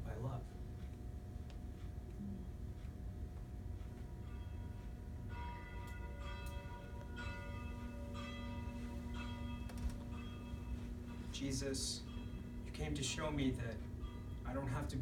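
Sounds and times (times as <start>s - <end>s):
church bells ringing: 4.2s - 15.0s.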